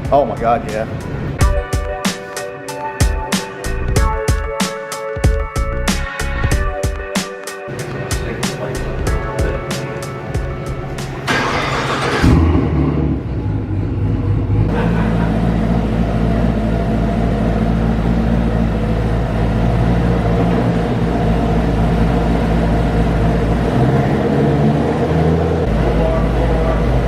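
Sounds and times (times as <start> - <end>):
car engine idling: 7.7 - 27.0.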